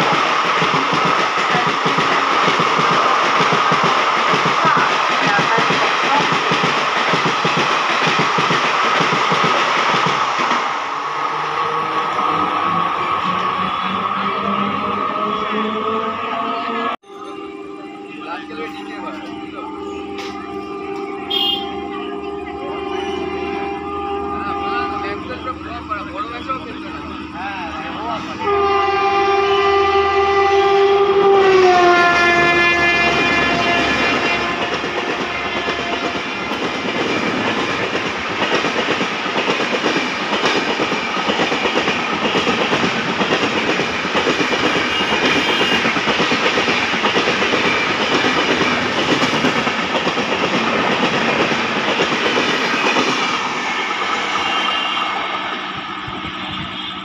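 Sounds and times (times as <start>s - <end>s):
locomotive horn: 13.2s - 36.5s, 44.6s - 46.0s, 54.2s - 57.0s.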